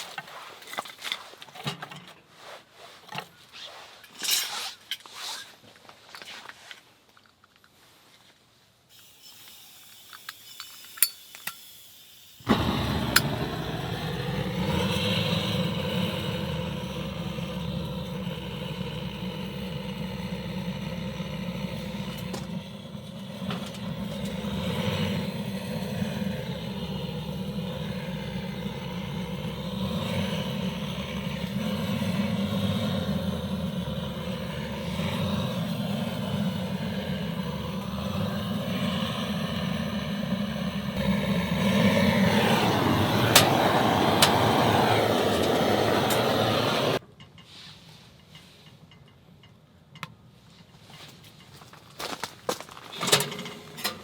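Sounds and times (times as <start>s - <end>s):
loud engine-like drone: 12.4s - 47.0s.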